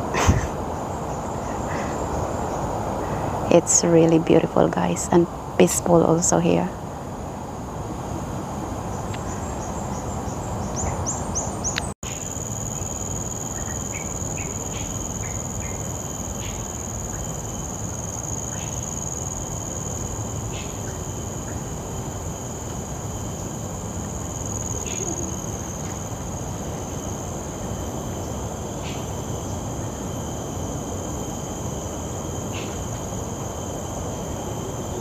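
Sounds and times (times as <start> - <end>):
high-pitched insect drone: 8.0 - 35.0.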